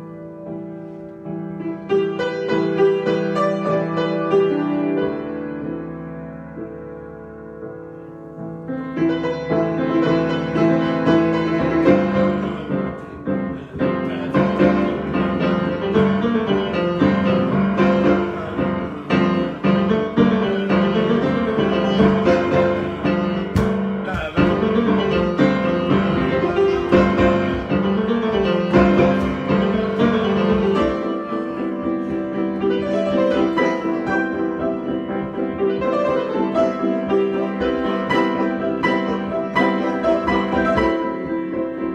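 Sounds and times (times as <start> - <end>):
solo piano: 0.0 - 41.9.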